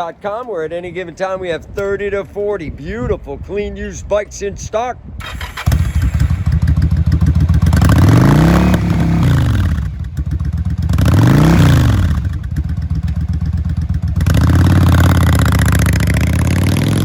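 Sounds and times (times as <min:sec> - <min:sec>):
motorcycle engine idling and revving: 0:05.2 - 0:17.0.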